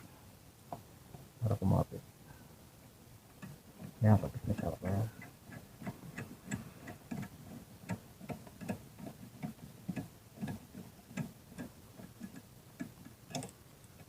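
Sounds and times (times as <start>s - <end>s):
ratchet wrench clicking: 9.4s - 13.6s.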